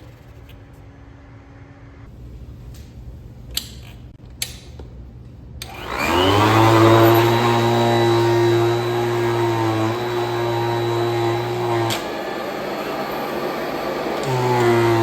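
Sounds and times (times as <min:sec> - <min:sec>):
vacuum cleaner motor whine: 0:05.6 - 0:15.0
vacuum cleaner switch clicks: 0:05.6 - 0:15.0.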